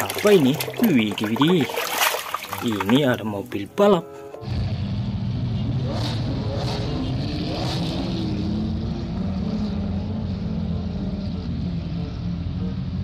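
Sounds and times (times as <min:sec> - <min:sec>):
car engines rolling past: 0:04.5 - 0:13.0.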